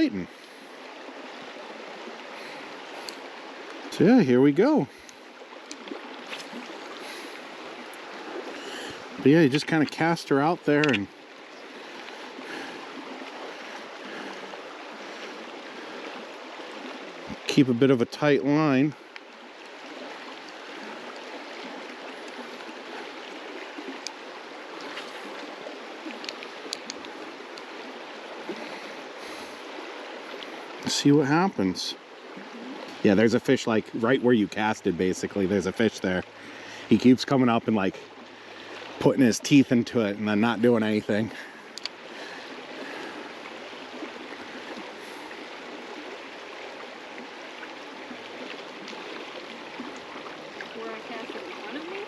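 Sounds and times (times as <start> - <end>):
river water rushing: 0.0 - 52.0
faint ticks: 3.0 - 3.8, 5.0 - 6.6, 24.0 - 24.2, 24.8 - 27.7, 41.7 - 42.0.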